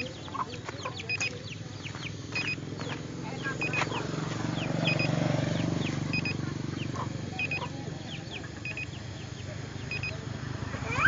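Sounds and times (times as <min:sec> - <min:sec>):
steady low hum: 0:00.0 - 0:11.0
double electronic beep: 0:02.4 - 0:02.6, 0:04.8 - 0:05.1, 0:06.1 - 0:06.4, 0:09.9 - 0:10.2.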